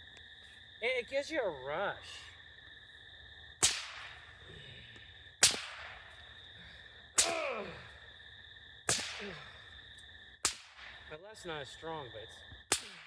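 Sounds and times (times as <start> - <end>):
whip cracking: 3.6 - 4.2, 5.4 - 6.2, 7.2 - 7.6, 8.9 - 9.4, 10.4 - 11.0, 12.7 - 13.0.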